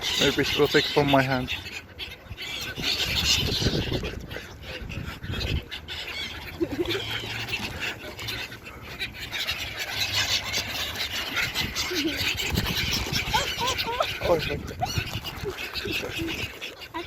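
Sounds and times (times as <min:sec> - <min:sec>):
seagulls calling: 0:00.0 - 0:17.0.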